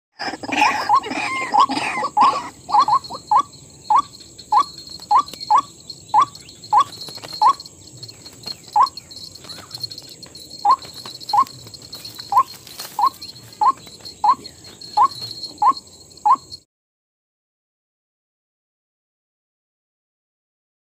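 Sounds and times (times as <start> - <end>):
waterhen calling: 0.2 - 16.5.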